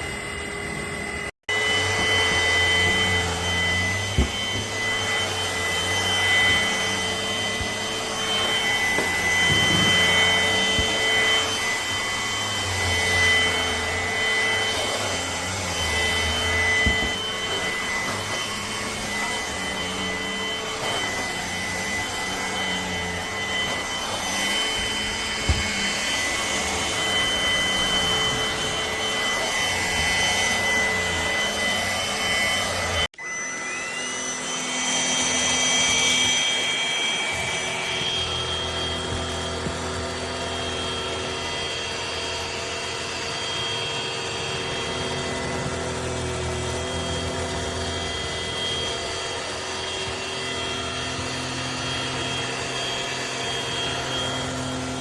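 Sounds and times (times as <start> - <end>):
vacuum motor whining: 0.0 - 55.0
suction airflow rushing: 1.5 - 38.4.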